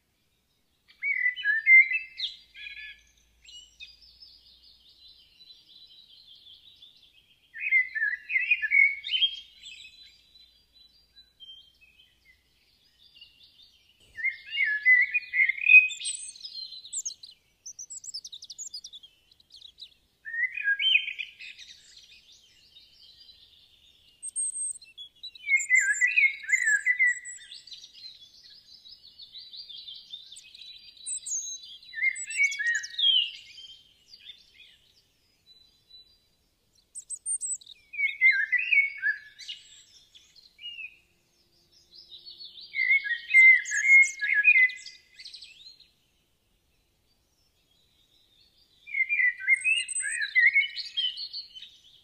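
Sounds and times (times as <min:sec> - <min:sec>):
songbird chirping phrases: 0:00.0 - 0:52.0
faint high twittering: 0:12.8 - 0:28.9, 0:36.7 - 0:37.8.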